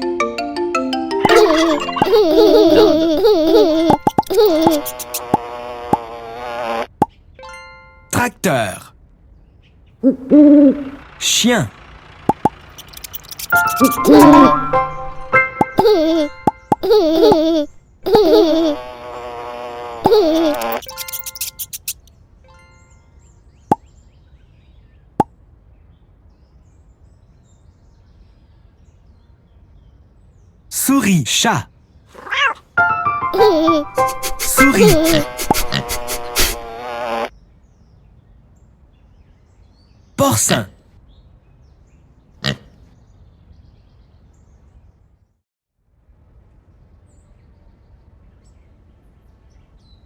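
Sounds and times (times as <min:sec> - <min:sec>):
faint bird chirps: 0:12.5 - 0:14.6.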